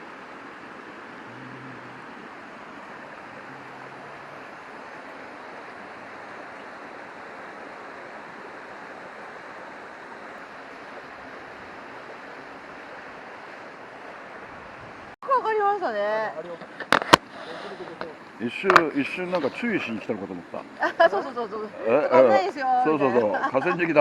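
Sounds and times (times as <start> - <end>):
river rushing: 0.0 - 24.0.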